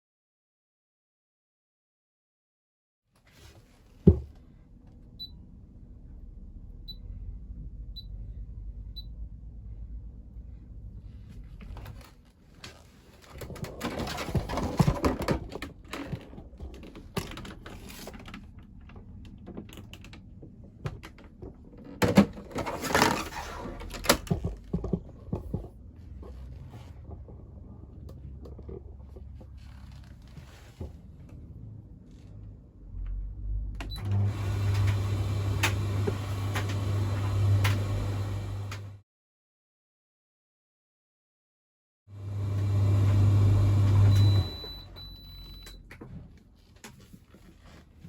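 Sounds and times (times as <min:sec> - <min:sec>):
clattering and knocking: 0:13.3 - 0:29.6.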